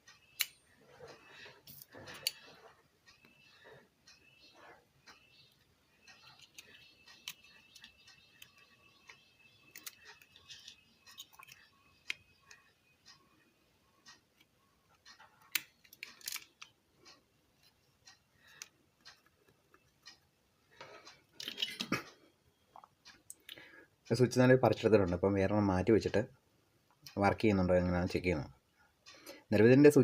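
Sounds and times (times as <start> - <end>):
faint steady high tone: 0.0 - 15.0
small tools tapping circuit board: 5.1 - 12.8.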